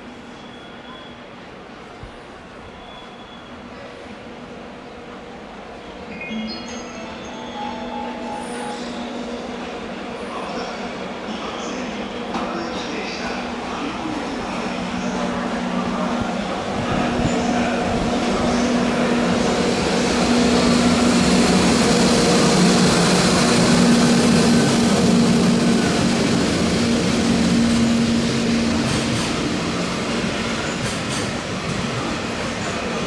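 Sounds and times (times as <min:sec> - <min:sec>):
freight train rumbling past: 0:06.6 - 0:33.0.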